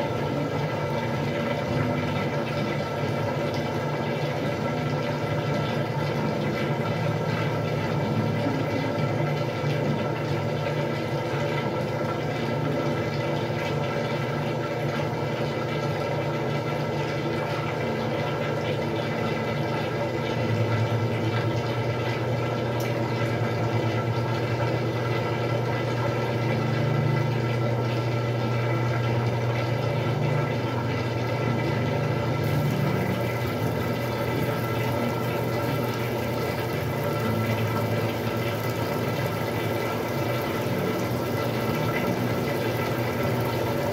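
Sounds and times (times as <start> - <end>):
washing machine motor hum: 0.0 - 43.9
rushing water: 32.4 - 43.9.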